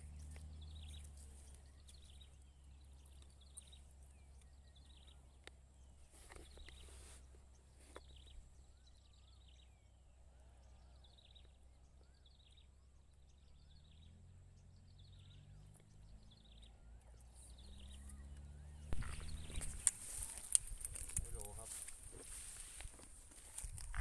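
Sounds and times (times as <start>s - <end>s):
low rumble: 16.0s - 22.6s
rustling: 18.9s - 24.0s.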